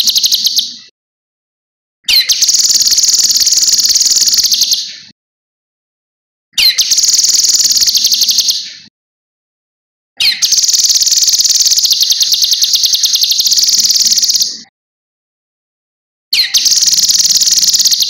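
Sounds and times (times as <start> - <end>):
bird singing high rapid trill: 0.0 - 0.9, 2.1 - 5.0, 6.6 - 8.9, 10.2 - 14.7, 16.4 - 18.0.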